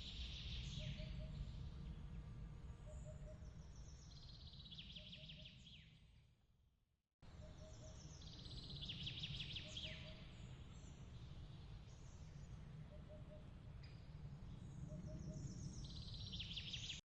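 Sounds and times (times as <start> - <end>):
low steady rumble: 0.0 - 5.7, 7.2 - 16.9
songbird trilling: 7.4 - 10.4.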